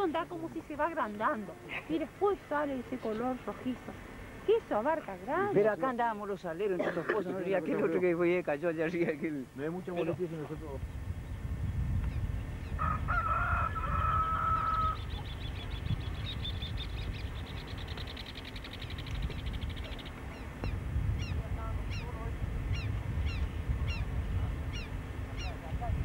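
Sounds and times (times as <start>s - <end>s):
birds calling: 0.0s - 8.1s, 8.9s - 26.0s
bird trill: 13.8s - 24.1s, 24.7s - 25.6s.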